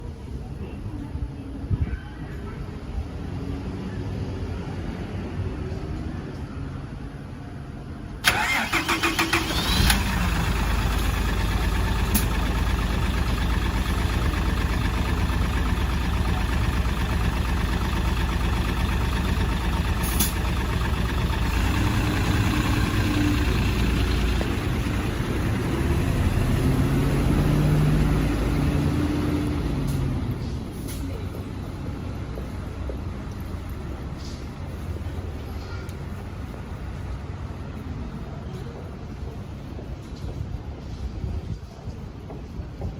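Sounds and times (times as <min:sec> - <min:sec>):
engine starter cranking: 0:08.2 - 0:24.9
diesel engine idling: 0:08.2 - 0:30.5.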